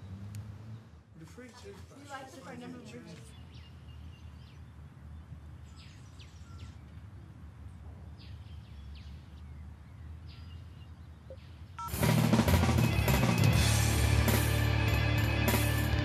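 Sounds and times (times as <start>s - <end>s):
loud band music: 11.9s - 16.0s.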